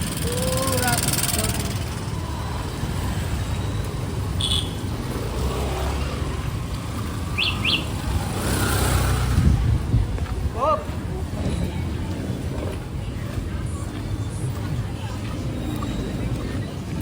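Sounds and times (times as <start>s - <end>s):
traffic rumble: 0.0s - 17.0s
bird chirps: 7.2s - 8.0s.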